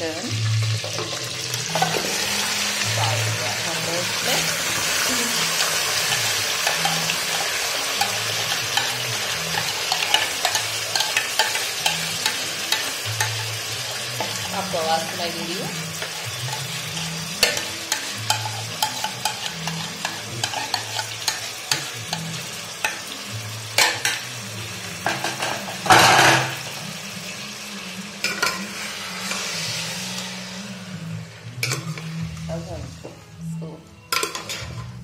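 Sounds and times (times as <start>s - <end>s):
chicken sizzling in hot oil: 0.0s - 32.9s
metal spoon scraping a pot: 4.3s - 14.7s, 16.0s - 23.0s.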